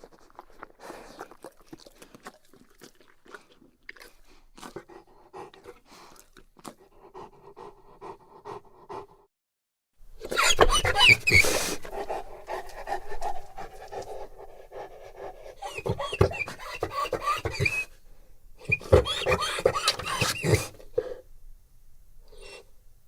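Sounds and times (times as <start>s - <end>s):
wet mouth noises: 0.0s - 7.8s
dog panting heavily: 4.7s - 9.3s, 10.4s - 17.9s, 18.6s - 21.2s.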